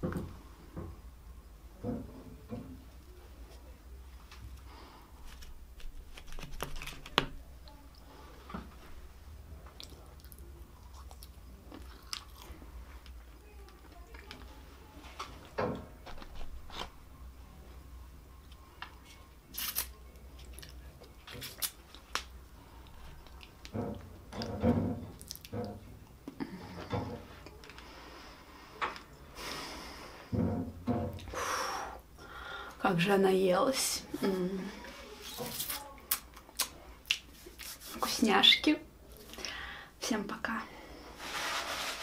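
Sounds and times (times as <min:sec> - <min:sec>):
faint low hum: 0:00.0 - 0:38.2
chewing crunchy fries: 0:09.7 - 0:12.6.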